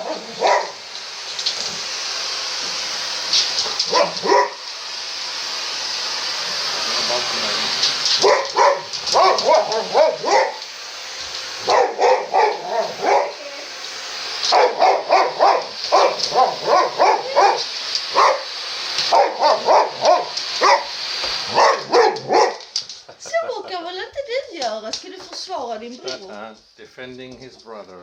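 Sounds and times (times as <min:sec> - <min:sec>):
dog barking: 0:00.0 - 0:00.8, 0:03.9 - 0:04.6, 0:08.2 - 0:10.6, 0:11.6 - 0:13.4, 0:14.5 - 0:18.5, 0:19.1 - 0:20.9, 0:21.5 - 0:22.7
vacuum cleaner hissing: 0:00.0 - 0:26.6.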